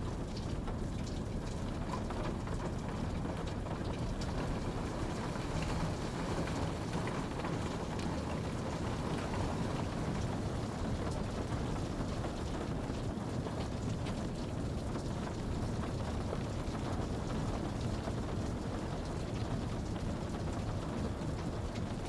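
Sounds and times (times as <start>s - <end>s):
steady rain pattering: 0.0s - 22.0s.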